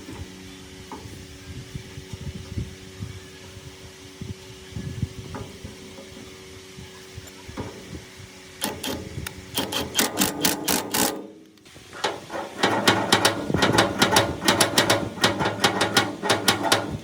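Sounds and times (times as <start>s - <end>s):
rapid knocking: 12.0s - 17.0s.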